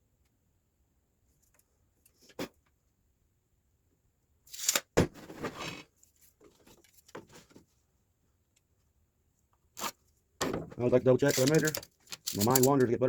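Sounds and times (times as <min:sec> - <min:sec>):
boards scraping: 0:05.0 - 0:05.9.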